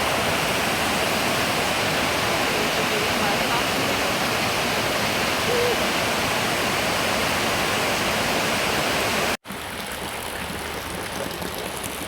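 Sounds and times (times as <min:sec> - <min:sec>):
heavy rain pouring: 0:00.0 - 0:09.4.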